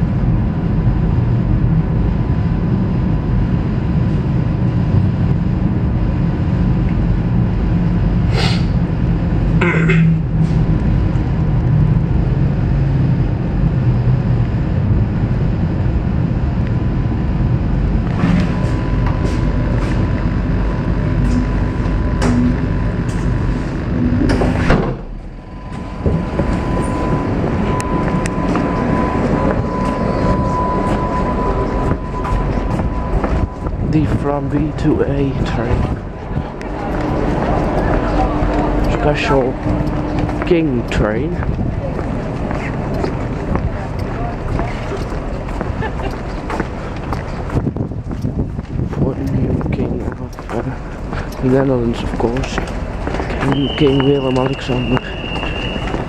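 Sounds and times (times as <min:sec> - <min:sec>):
train rumble: 0:00.0 - 0:56.0
steady high tone: 0:15.2 - 0:47.6, 0:53.3 - 0:56.0.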